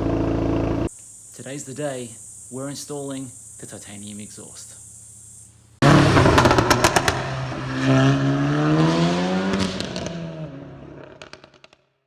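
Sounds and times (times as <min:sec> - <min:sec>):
exhaust crackles and pops: 0:05.8 - 0:07.6, 0:09.5 - 0:12.0
car engine revving: 0:05.8 - 0:11.5.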